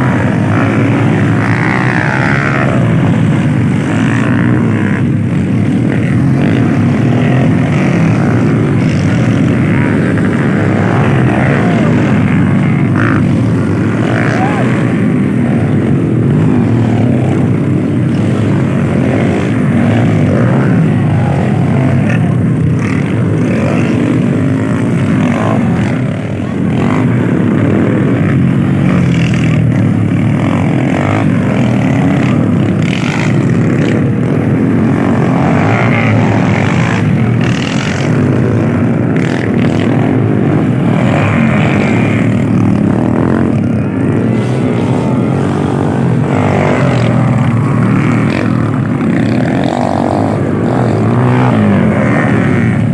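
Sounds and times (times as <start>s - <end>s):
dirt bike engines revving: 0.0s - 52.9s.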